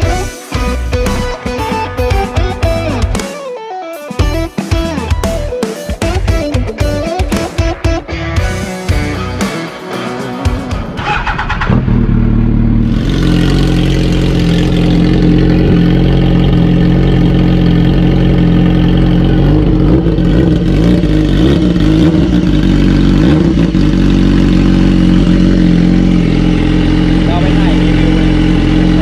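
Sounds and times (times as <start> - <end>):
motorcycle engine idling: 10.5 - 29.0.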